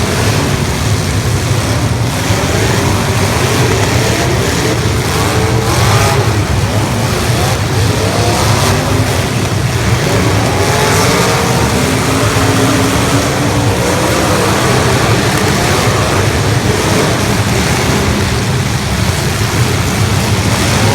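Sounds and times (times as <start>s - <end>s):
car engines revving: 0.0s - 20.9s.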